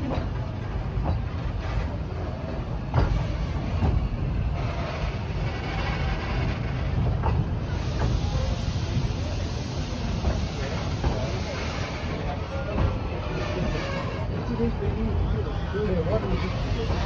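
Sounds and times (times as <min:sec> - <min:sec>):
steam train rumbling: 0:00.0 - 0:17.0.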